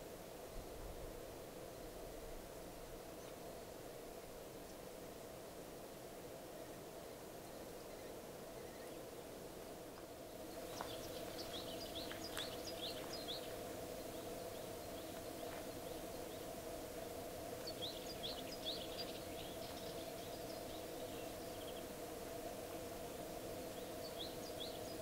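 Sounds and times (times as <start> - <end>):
faint hiss: 0.0 - 25.0
small birds chirping: 10.3 - 16.5, 17.6 - 22.0.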